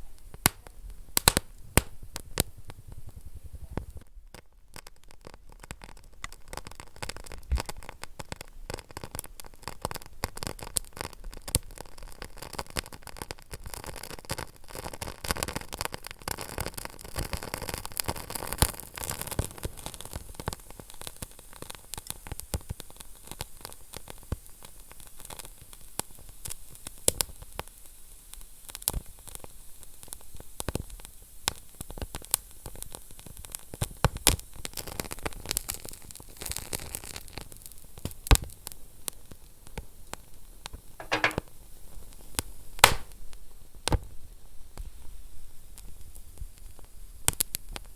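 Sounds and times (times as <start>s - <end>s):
wood fire crackling and popping: 0.2s - 12.2s, 42.8s - 43.1s.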